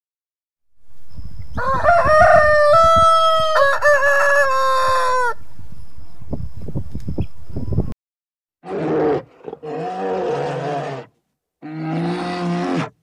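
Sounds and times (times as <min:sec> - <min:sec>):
rooster crowing: 0:01.5 - 0:05.4.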